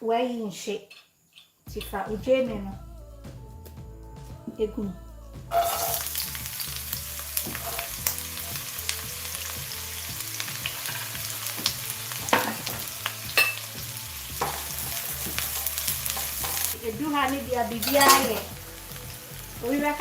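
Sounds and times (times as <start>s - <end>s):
utensil scraping pan: 5.5s - 6.2s, 17.8s - 18.5s
food sizzling in oil: 5.5s - 20.0s.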